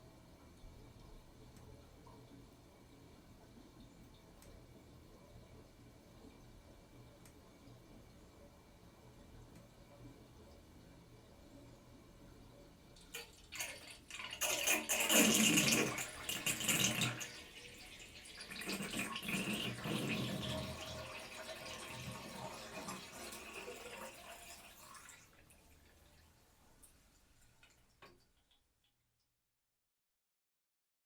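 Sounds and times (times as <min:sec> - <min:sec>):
bathtub drain gurgling: 0:13.0 - 0:28.7
water dripping: 0:24.4 - 0:29.0.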